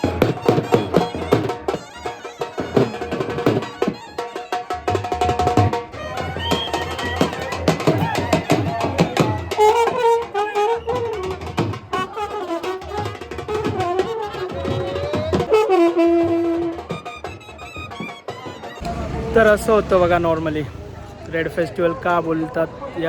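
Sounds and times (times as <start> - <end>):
wind instrument melody: 0.0 - 21.2.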